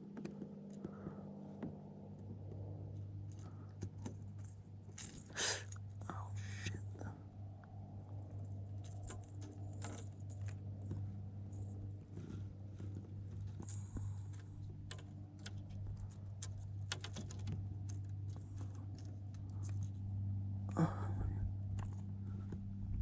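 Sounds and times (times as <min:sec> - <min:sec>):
steady low hum: 0:00.0 - 0:23.0
light clicks and taps: 0:07.6 - 0:20.0.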